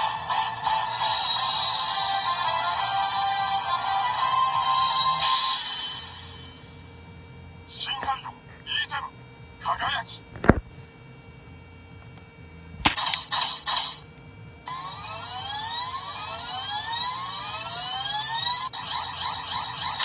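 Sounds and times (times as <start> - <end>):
steady electronic tone: 0.0 - 7.0
rising electronic sweeps: 14.7 - 18.6.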